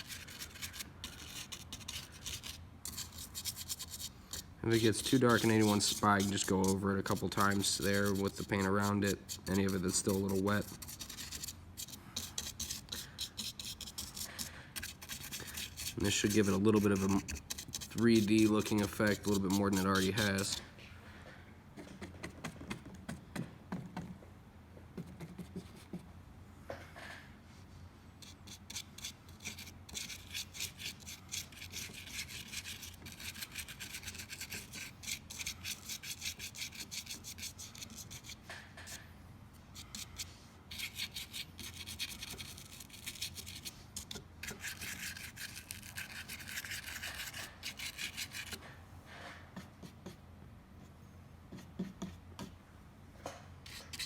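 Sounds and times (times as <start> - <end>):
paintbrush scratching hardened foam: 0.0 - 20.7, 28.2 - 39.0, 39.7 - 48.6, 53.7 - 54.0.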